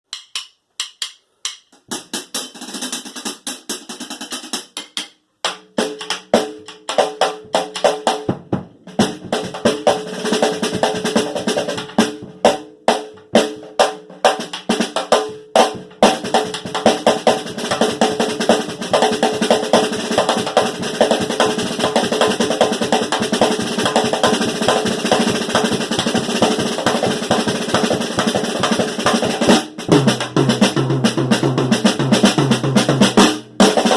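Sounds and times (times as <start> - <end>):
snare drum rolls: 16.0 - 33.9.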